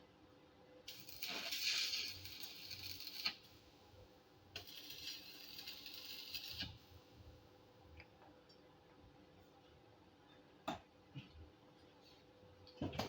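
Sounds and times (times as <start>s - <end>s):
electric arc welding crackle: 0.9s - 3.6s, 4.5s - 7.0s.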